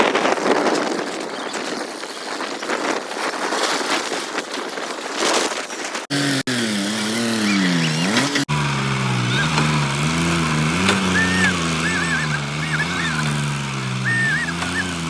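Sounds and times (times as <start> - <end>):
diesel engine running: 6.1 - 15.0
faint high chirps: 14.0 - 15.0.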